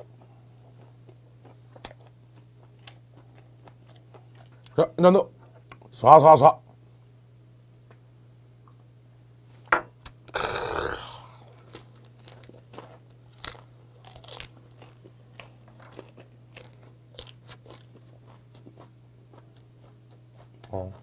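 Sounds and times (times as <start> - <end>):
close-up chewing with crunches: 0.7 - 4.8, 11.3 - 21.0.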